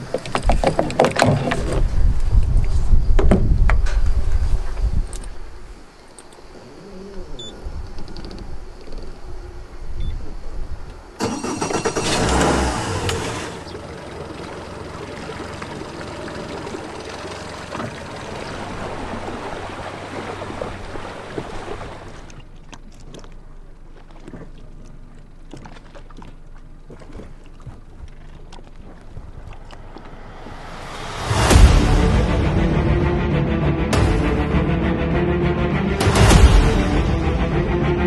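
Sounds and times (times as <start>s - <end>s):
outboard motor running: 12.0s - 30.6s.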